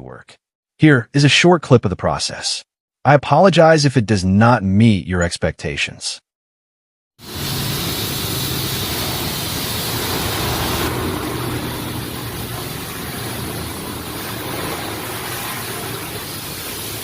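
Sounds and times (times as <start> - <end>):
pressure washer motor hum: 7.2 - 17.0
water spraying hiss: 7.2 - 17.0.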